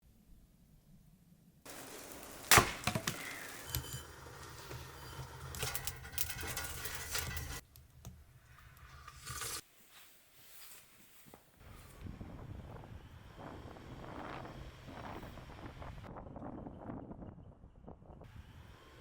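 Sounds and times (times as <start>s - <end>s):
wood splitting crackle: 1.7s - 9.6s
hatchet chopping wood: 2.5s - 3.5s.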